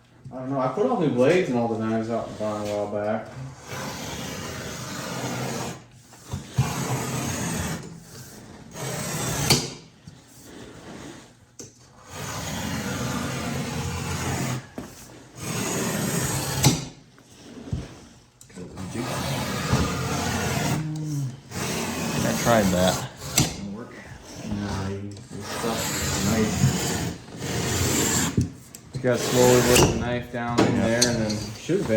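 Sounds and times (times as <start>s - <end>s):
blade rasping through material: 3.5s - 31.9s.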